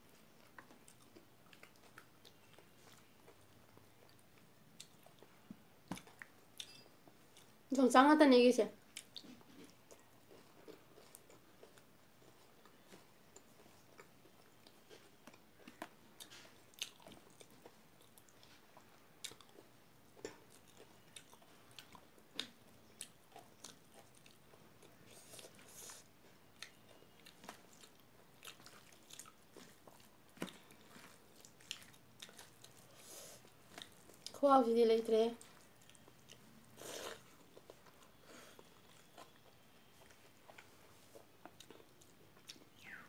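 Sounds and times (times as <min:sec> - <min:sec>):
chewing rice: 0:00.0 - 0:07.6, 0:08.8 - 0:34.4, 0:35.4 - 0:42.8.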